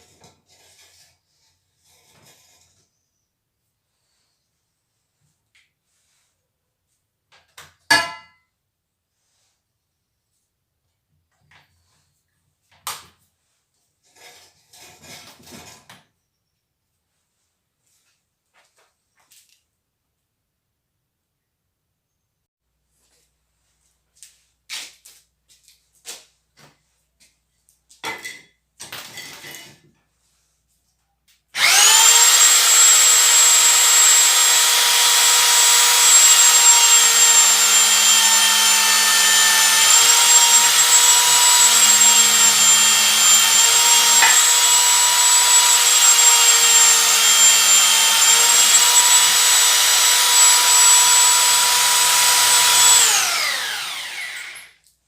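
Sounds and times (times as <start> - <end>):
drill motor whining: 31.6 - 54.8.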